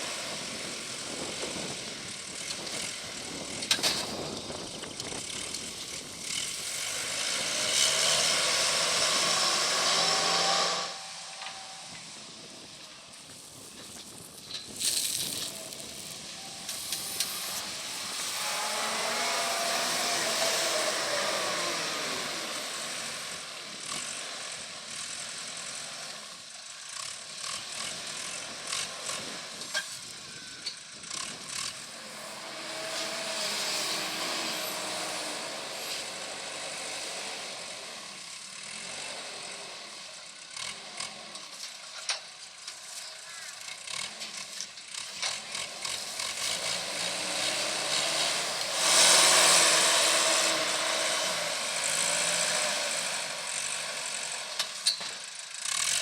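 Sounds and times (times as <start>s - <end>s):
tractor engine running: 0.0s - 56.0s
baler machinery hissing and rattling: 13.2s - 23.1s.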